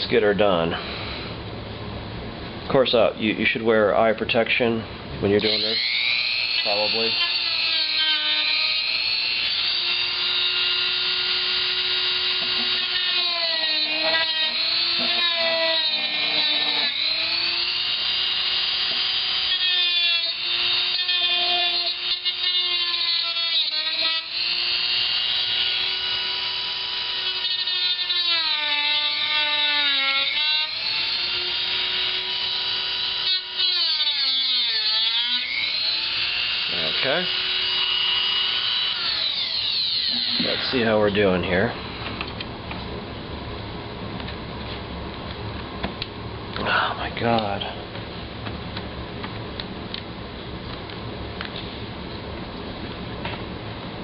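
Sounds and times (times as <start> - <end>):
rotary tool cutting plastic: 5.4 - 40.8.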